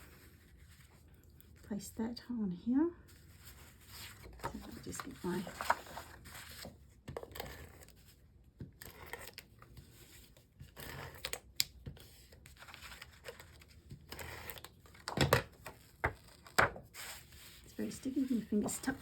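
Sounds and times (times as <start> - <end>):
paper rustling: 3.1 - 8.1, 12.0 - 19.0.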